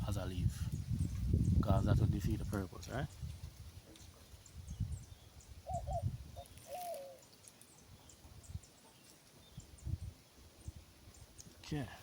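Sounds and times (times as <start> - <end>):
dove cooing: 5.6 - 7.3.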